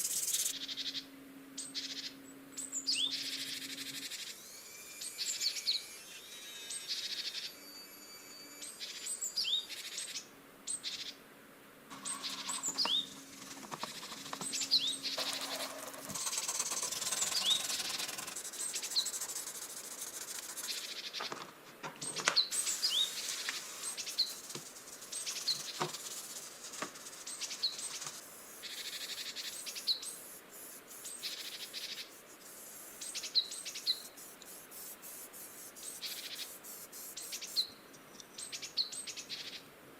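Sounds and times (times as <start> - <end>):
bird chirping: 0.0 - 11.2, 11.9 - 21.4, 22.0 - 39.6
scraping or rasping noise: 11.9 - 21.2.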